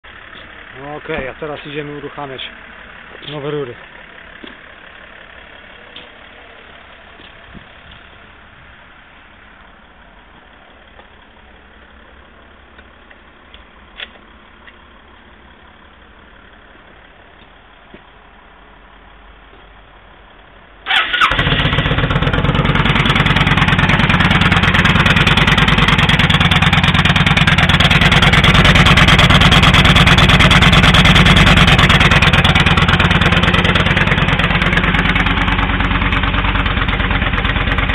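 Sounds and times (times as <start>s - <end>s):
motorcycle engine starting and running: 0.0s - 8.7s, 20.8s - 37.9s.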